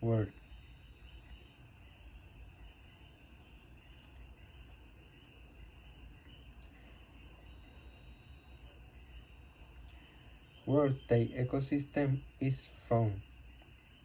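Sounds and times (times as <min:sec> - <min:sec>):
high-pitched whine: 0:00.0 - 0:03.1, 0:05.5 - 0:13.2.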